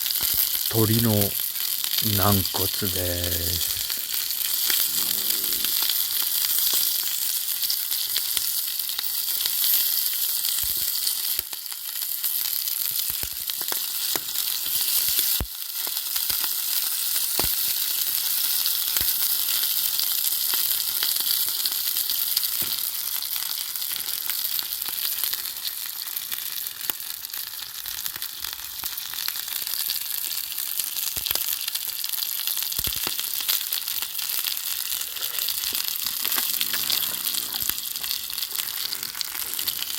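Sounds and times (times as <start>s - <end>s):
sharp pops of frying: 0.0s - 0.7s, 12.9s - 18.0s, 22.3s - 23.1s
cartilage sizzling as it fries: 0.0s - 39.9s.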